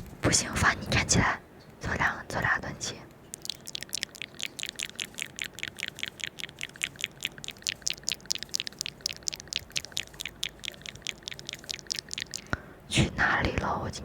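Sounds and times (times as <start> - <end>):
rapid crisp clicks: 3.3 - 12.6.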